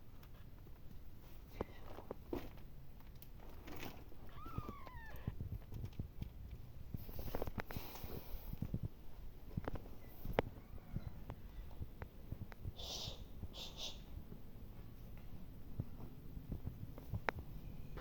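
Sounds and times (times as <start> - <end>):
rustling: 0.1 - 8.9
kitten mewing: 4.2 - 5.4.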